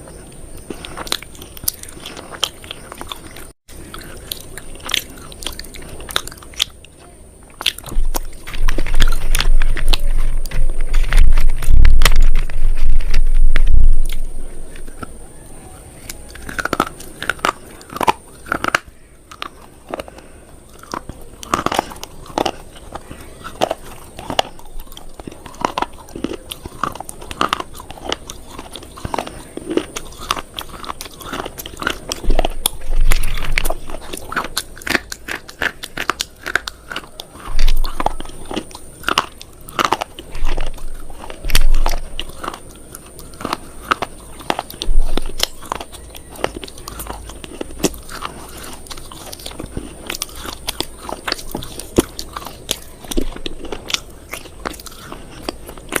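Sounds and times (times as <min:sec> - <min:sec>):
crunching chewing: 0:00.0 - 0:56.0
heavy low thumps: 0:07.9 - 0:14.7.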